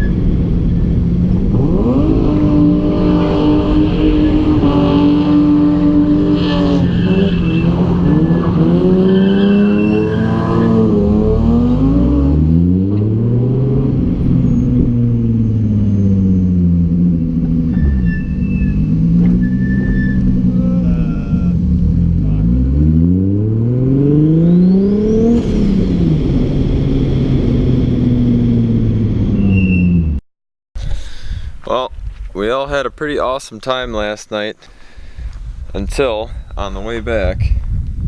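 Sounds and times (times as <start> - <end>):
car engines revving: 0.0 - 30.2.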